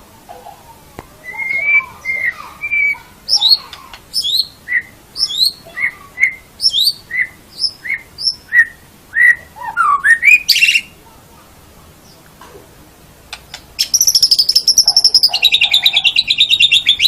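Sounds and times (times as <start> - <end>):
bird singing whistled notes: 1.2 - 11.0, 13.8 - 17.0.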